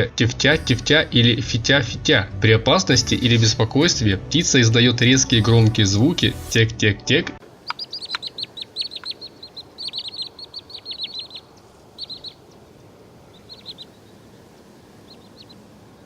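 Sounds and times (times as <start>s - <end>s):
faint steady hiss: 7.4s - 16.0s
bird alarm calls: 7.5s - 16.0s.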